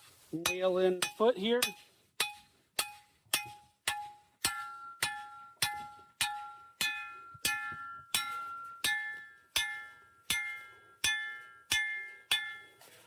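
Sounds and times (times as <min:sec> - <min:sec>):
hammer striking steel stake: 0:00.4 - 0:12.9.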